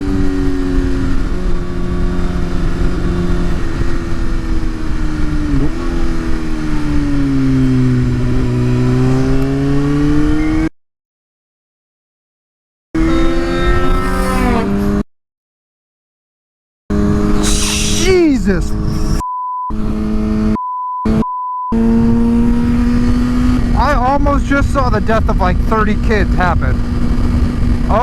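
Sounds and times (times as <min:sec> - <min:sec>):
motorcycle engine running: 0:00.0 - 0:10.3, 0:21.8 - 0:28.0
wind and road rumble: 0:00.0 - 0:10.7, 0:13.0 - 0:15.0, 0:16.9 - 0:28.0.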